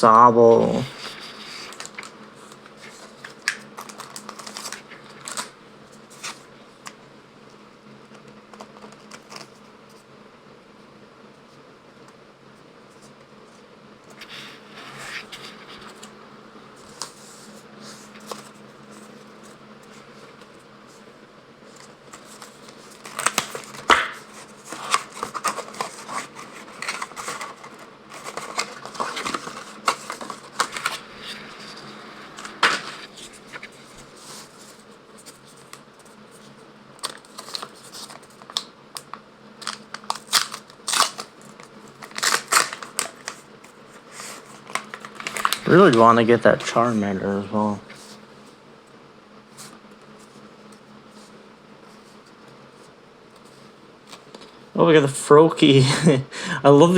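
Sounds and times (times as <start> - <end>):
faint steady hum: 0.0 - 56.9
cards shuffling: 0.7 - 7.0, 16.8 - 20.6, 21.7 - 48.2
foil packs tearing and crinkling: 1.0 - 6.5, 21.8 - 31.8, 37.0 - 47.0.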